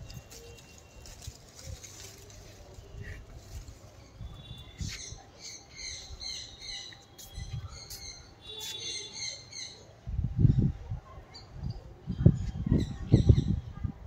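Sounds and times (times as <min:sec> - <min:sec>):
birds chirping: 0:02.8 - 0:09.9.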